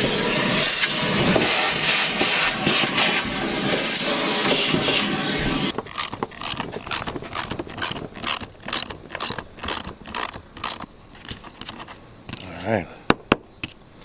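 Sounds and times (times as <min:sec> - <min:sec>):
ratchet wrench clicking: 0:05.7 - 0:11.9.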